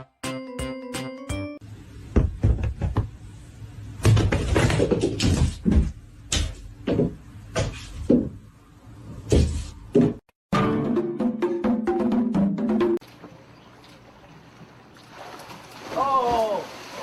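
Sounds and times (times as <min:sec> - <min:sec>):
irregular knocks and bumps: 0:02.1 - 0:03.2, 0:04.0 - 0:08.4, 0:09.3 - 0:10.3.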